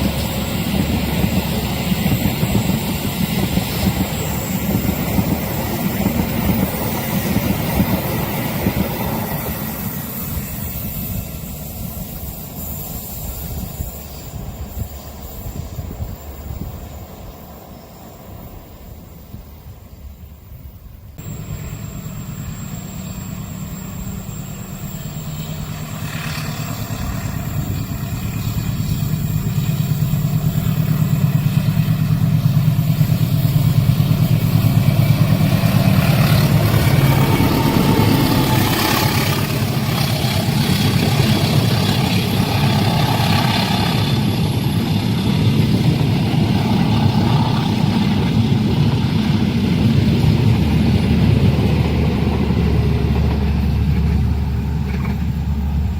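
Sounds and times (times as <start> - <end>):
heavy vehicle engine rumble: 21.2 - 55.9
rushing noise: 21.2 - 55.9.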